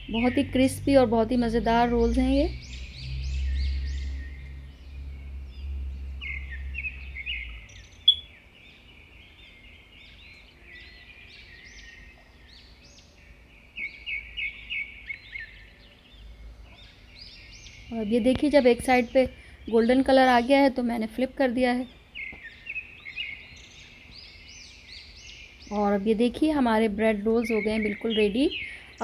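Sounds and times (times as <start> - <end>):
low rumble: 0.0 - 8.4
small birds chirping: 0.0 - 29.0.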